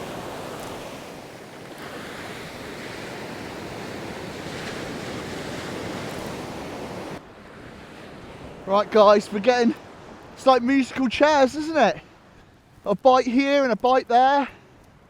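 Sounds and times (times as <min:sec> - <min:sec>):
wind buffeting the microphone: 0:00.0 - 0:10.7
surf breaking on a beach: 0:00.0 - 0:14.7.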